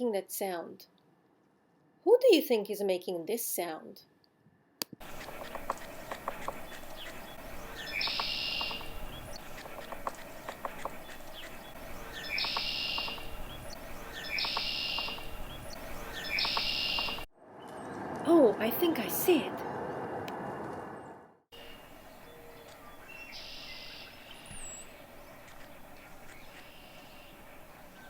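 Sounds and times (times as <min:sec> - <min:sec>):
bird calling harshly: 0:05.0 - 0:17.3, 0:21.6 - 0:28.0
faint ticks: 0:05.0 - 0:17.3, 0:24.5 - 0:27.1.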